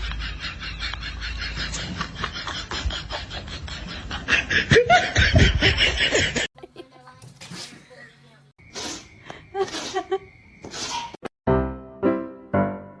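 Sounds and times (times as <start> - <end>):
person laughing: 0.0 - 6.9, 9.5 - 10.3.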